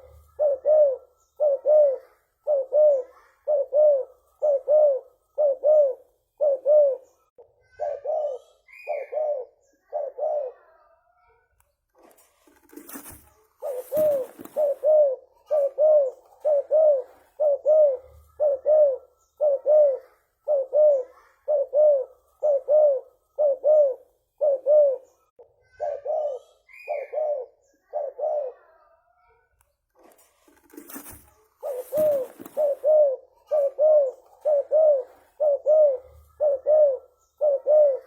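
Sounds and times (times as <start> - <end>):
dove cooing: 0.0 - 10.8, 12.0 - 28.9, 30.0 - 38.0
brief rustle: 11.9 - 14.8, 29.9 - 32.9.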